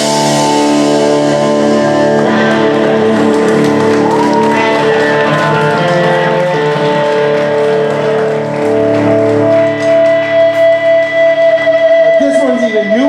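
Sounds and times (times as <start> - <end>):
amplified electric guitars: 0.0 - 13.0.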